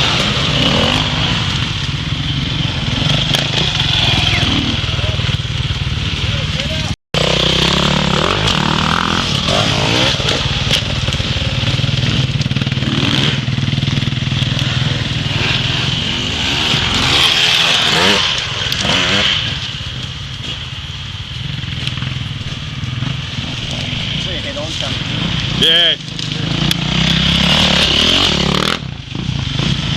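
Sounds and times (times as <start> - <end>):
dirt bike engine revving: 0.0 - 20.8, 21.4 - 29.9.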